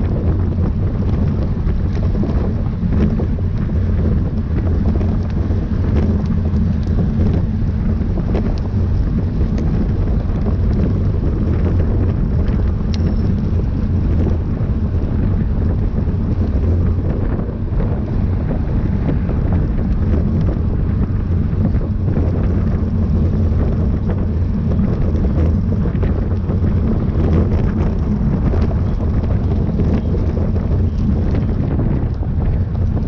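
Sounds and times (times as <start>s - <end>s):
wind buffeting microphone: 0.0s - 33.0s
faint clicks: 12.4s - 13.6s.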